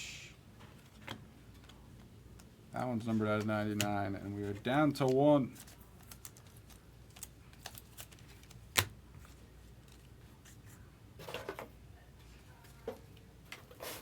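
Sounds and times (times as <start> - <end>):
cards clicking and tapping: 3.4 - 8.9.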